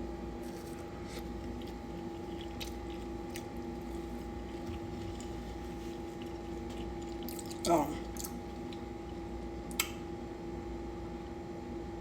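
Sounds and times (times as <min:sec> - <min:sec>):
room hum: 0:00.0 - 0:12.0
person chewing food: 0:00.4 - 0:09.9.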